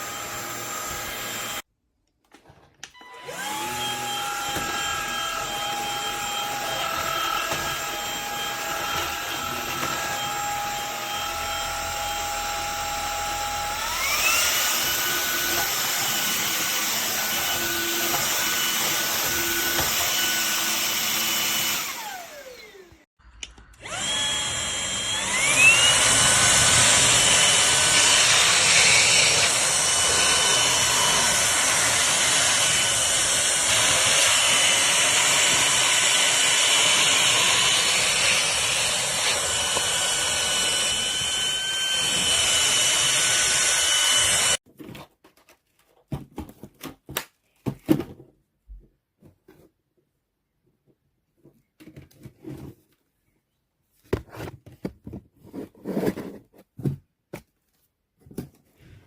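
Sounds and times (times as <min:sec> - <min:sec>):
vacuum motor whining: 0:03.0 - 0:23.1, 0:23.7 - 0:44.6.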